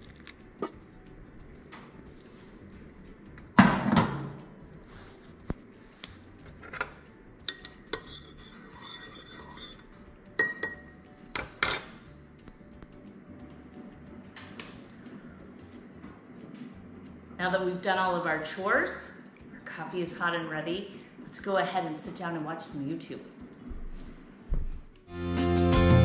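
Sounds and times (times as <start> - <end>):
coffee pot clunking on stove: 3.6 - 4.4
spoon clinking in ceramic mug: 6.7 - 12.1.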